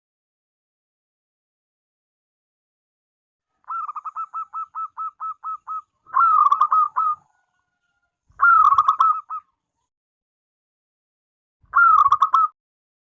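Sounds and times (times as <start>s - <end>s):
dove cooing: 3.5s - 9.5s, 11.8s - 12.5s.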